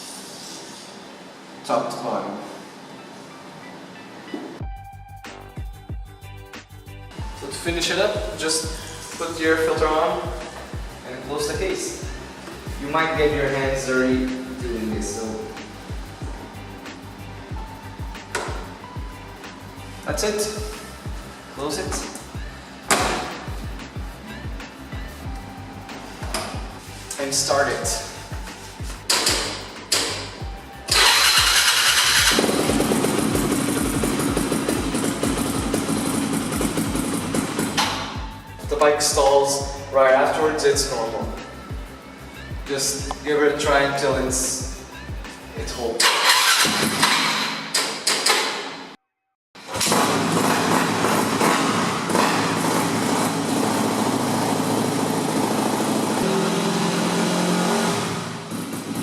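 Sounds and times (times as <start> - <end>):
dirt bike engine idling: 30.9 - 38.3, 49.9 - 59.0.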